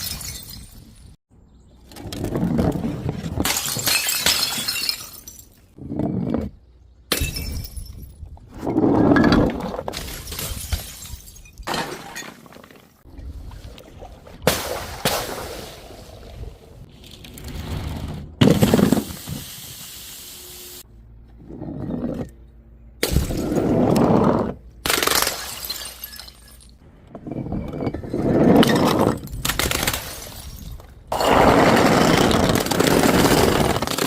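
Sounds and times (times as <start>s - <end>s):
glass bottles shattering: 0.0s - 1.1s, 3.4s - 5.8s, 7.1s - 8.1s, 9.2s - 12.7s, 24.9s - 26.8s.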